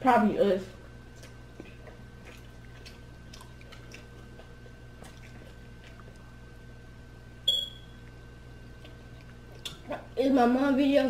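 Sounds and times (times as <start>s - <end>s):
steady low hum: 0.0s - 11.0s
pizza being chewed: 0.8s - 7.1s, 8.0s - 10.2s.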